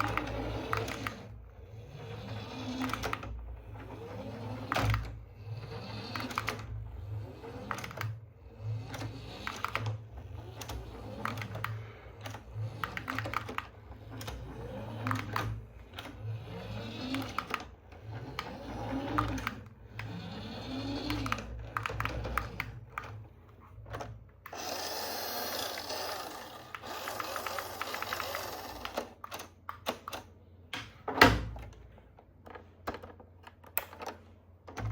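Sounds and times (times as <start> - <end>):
small electric motor whirring: 16.2 - 21.5, 24.5 - 29.2.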